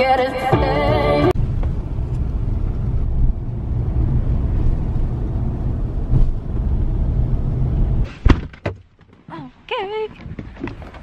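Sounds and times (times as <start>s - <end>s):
truck driving rumble: 0.1s - 8.4s.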